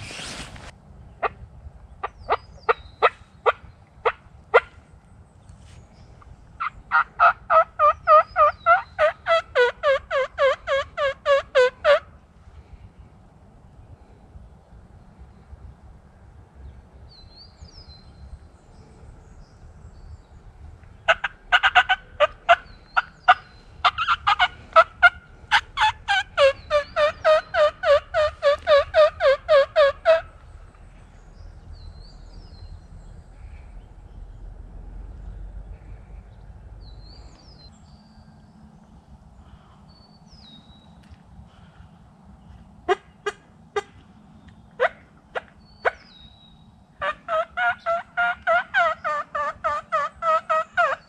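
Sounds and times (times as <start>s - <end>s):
faint songbird chirps: 0.0s - 6.9s, 12.2s - 47.2s
wild turkey clucking and yelping: 2.0s - 4.8s, 6.2s - 12.2s, 20.9s - 31.0s, 42.8s - 44.1s, 44.7s - 46.1s, 47.0s - 51.0s.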